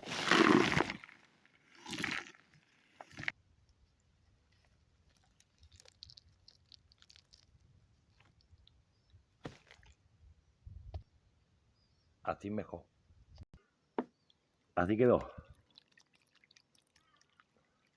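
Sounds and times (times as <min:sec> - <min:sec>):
rustling plant and soil handling: 0:00.0 - 0:08.6.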